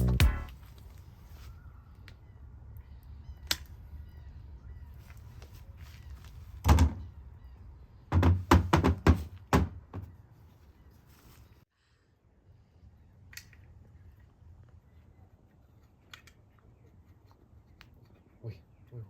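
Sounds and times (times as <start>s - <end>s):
dull knocks and thumps: 8.1s - 10.1s.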